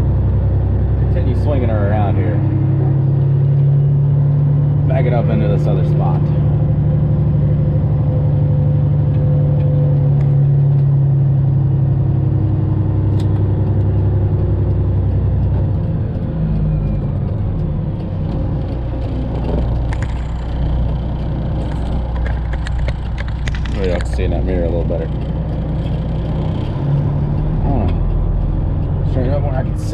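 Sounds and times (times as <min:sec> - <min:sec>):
diesel truck engine running: 0:00.0 - 0:29.9.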